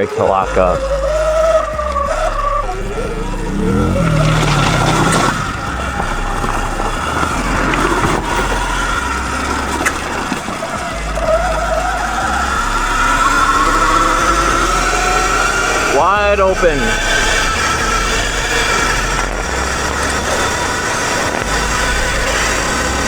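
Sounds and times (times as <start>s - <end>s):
dirt bike engine running: 0.0s - 23.0s
wind rumbling on microphone: 0.0s - 23.0s.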